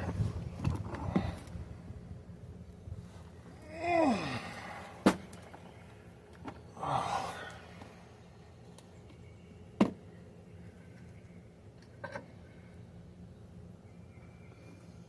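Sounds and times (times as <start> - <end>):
person grunting or sighing: 3.6 - 4.9, 6.8 - 7.6.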